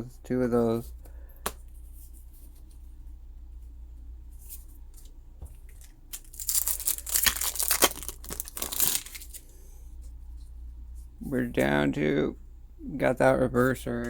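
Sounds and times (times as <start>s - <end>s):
foil wrapper ripping and crinkling: 5.6s - 9.5s.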